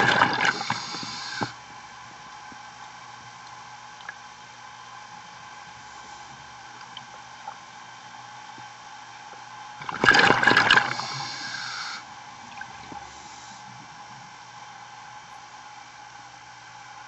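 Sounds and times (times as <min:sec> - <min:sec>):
scuba exhaled bubbles: 0:00.0 - 0:01.6, 0:09.8 - 0:13.2
underwater hum: 0:00.0 - 0:17.0.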